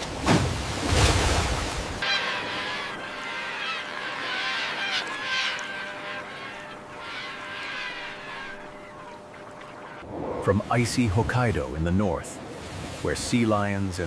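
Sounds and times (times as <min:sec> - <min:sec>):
flock of birds honking: 0:02.0 - 0:10.0.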